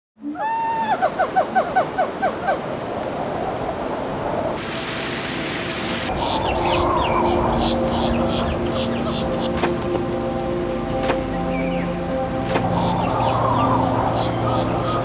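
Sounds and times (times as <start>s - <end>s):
outdoor hiss: 4.6s - 6.1s.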